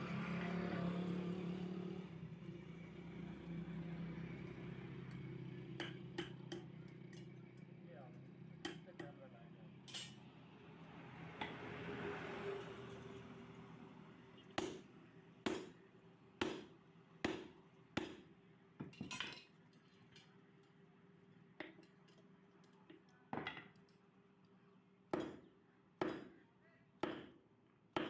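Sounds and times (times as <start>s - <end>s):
hammer striking iron: 5.8s - 7.2s, 8.6s - 9.2s, 14.6s - 15.8s, 16.4s - 19.0s, 25.1s - 26.4s, 27.0s - 27.4s.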